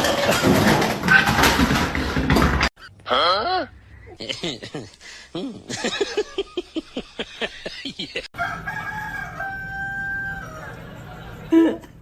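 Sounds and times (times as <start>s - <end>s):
rooster crowing: 8.4s - 11.3s.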